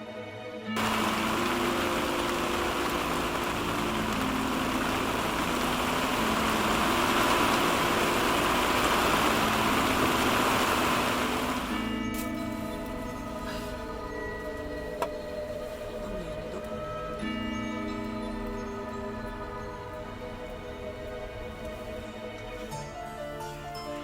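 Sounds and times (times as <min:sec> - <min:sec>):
heavy rain pouring: 0:00.8 - 0:12.0.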